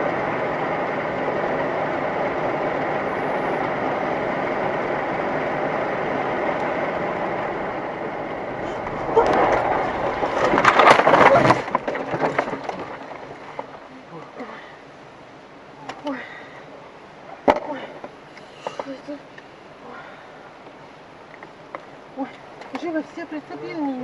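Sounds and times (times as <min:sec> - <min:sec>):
car driving noise: 0:00.0 - 0:23.8
car crash impacts: 0:08.6 - 0:13.6.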